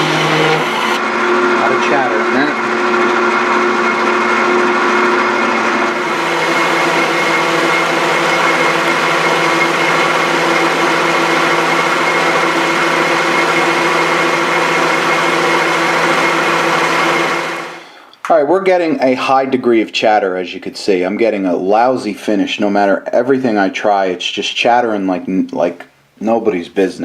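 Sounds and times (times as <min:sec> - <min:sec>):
lathe tool chattering: 0:00.0 - 0:01.8, 0:02.6 - 0:17.8
metal lathe cutting: 0:00.0 - 0:17.9.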